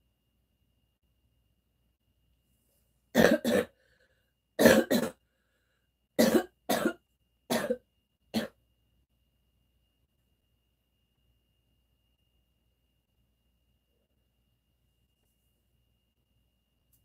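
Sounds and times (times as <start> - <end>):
person coughing: 3.2 - 3.8, 4.6 - 5.2, 6.2 - 8.6.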